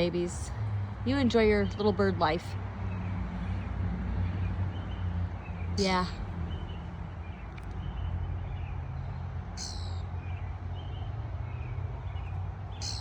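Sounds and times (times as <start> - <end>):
harsh high bird call: 9.6 - 10.1, 12.7 - 13.0.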